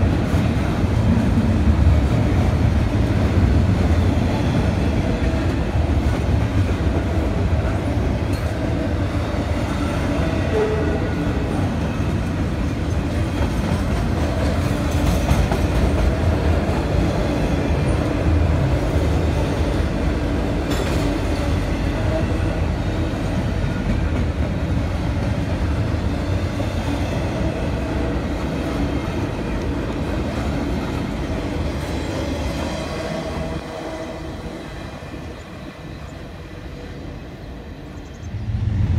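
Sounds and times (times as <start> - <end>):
train wheels rumbling and rattling: 0.0 - 38.9.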